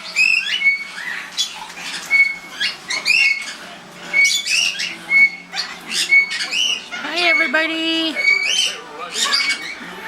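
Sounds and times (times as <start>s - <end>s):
parrots whistling and squawking: 0.0s - 10.0s.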